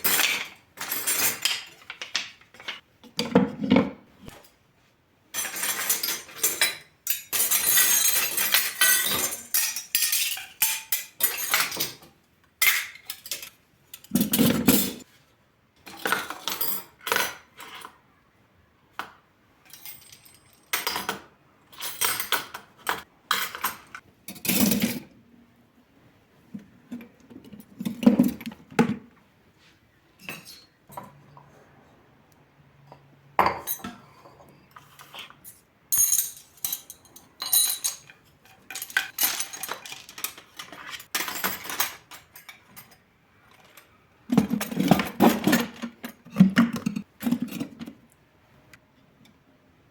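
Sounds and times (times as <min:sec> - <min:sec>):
dishes and cutlery clattering: 0:00.0 - 0:04.5, 0:05.3 - 0:15.1, 0:19.7 - 0:25.2, 0:26.5 - 0:29.0, 0:30.2 - 0:31.5, 0:32.8 - 0:48.0.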